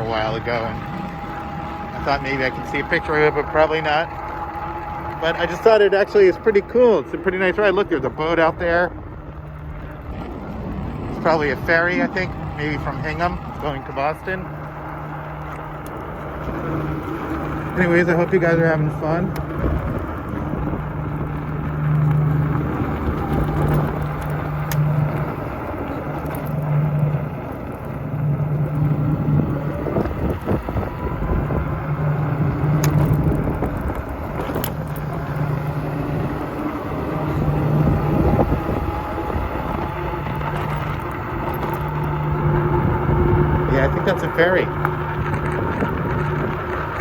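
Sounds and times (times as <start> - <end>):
bicycle tyre noise: 0.0 - 47.0
low hum: 0.0 - 47.0
wind rushing over microphone: 15.7 - 47.0.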